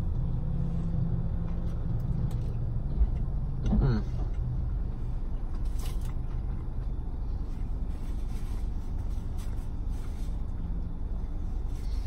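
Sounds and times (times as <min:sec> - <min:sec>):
car interior rumble: 0:00.0 - 0:12.0
crisp napkin rustle: 0:07.4 - 0:10.6.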